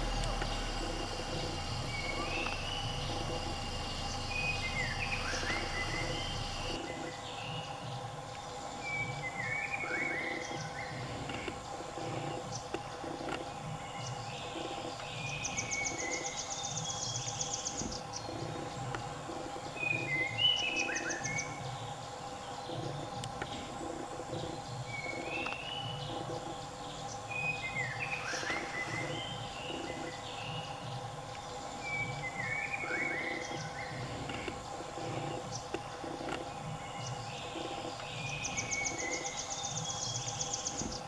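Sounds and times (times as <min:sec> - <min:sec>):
bird trill: 0:00.0 - 0:06.8
birds chirping and whistling: 0:00.0 - 0:08.0, 0:08.8 - 0:11.1, 0:13.6 - 0:22.0, 0:22.6 - 0:31.1, 0:31.8 - 0:41.0
steady low hum: 0:00.0 - 0:41.0.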